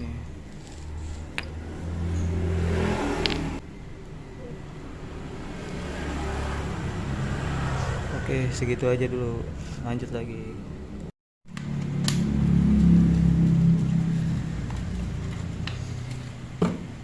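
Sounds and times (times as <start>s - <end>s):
vehicle engine revving: 0.8s - 3.6s, 4.6s - 9.6s, 11.5s - 16.6s.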